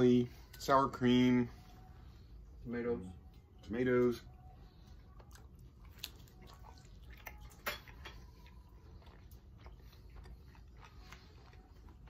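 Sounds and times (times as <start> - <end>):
low steady hum: 0.0 - 12.0
chewing crunchy food: 4.8 - 12.0.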